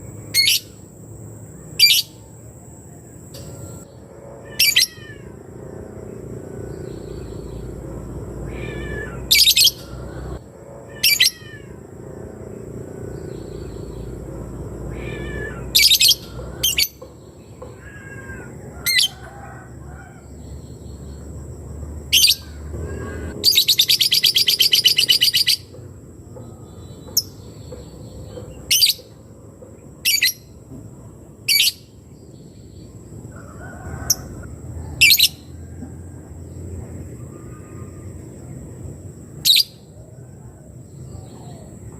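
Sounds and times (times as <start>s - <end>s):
bird chirping and trilling: 0.3s - 0.8s, 1.6s - 2.2s, 3.4s - 5.2s, 8.4s - 11.6s, 14.8s - 19.2s, 22.1s - 25.7s, 30.0s - 30.5s, 39.4s - 39.9s.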